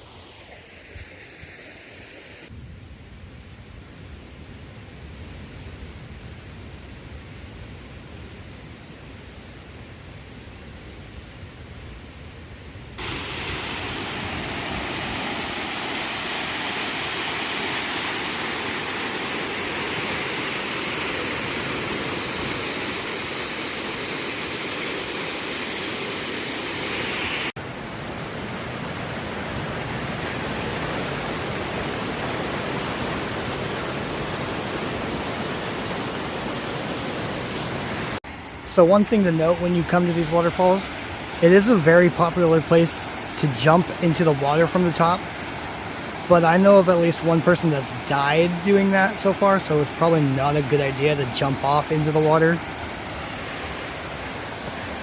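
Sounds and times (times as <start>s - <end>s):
waterfall rushing: 13.0s - 55.0s.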